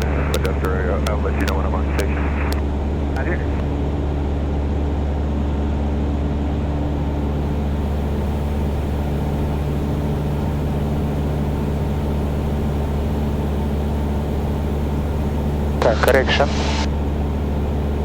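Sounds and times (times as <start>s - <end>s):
airplane engine drone in cockpit: 0.0s - 18.0s.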